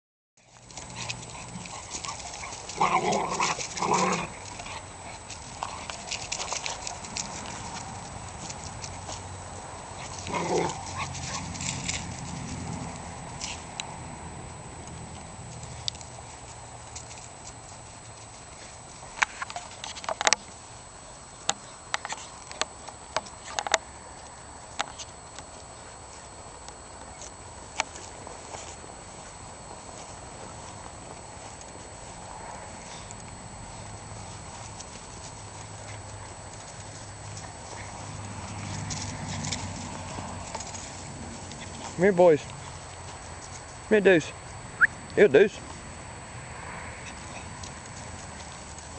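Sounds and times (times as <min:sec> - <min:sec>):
puppies' paws tapping and clicking: 0:00.4 - 0:14.0, 0:14.8 - 0:20.6, 0:21.4 - 0:25.5, 0:34.4 - 0:43.9, 0:47.0 - 0:48.9.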